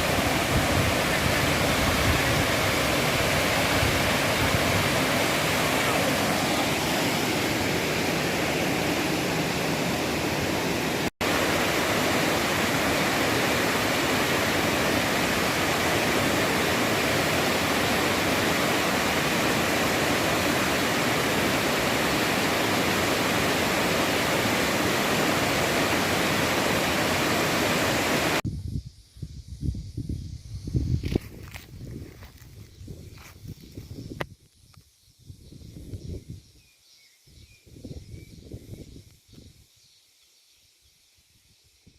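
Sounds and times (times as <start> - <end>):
waterfall rushing: 0.0 - 28.4.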